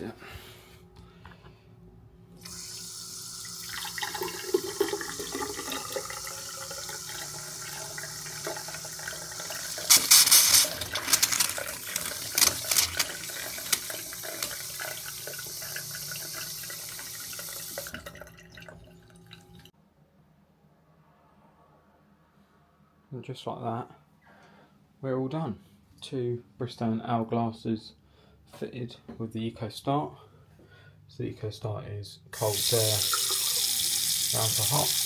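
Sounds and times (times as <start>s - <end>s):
tap water running into sink: 2.4s - 19.7s, 32.4s - 35.0s.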